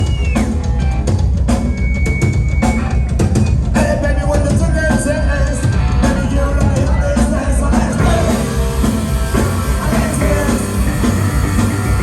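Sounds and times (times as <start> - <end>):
rock band playing: 0.0 - 12.0
bass drum and snare hits: 8.0 - 12.0.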